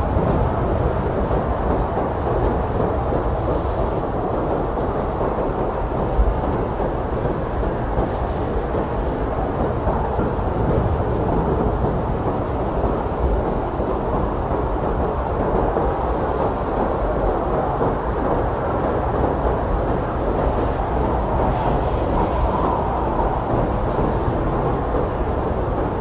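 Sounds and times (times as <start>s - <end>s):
blizzard wind blowing hard: 0.0s - 26.0s.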